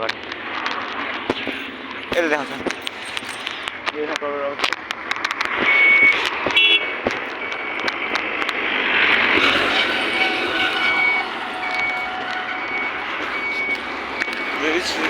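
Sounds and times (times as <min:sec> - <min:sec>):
vehicle and traffic noise: 0:00.0 - 0:15.0
reversing beeper: 0:09.0 - 0:15.0.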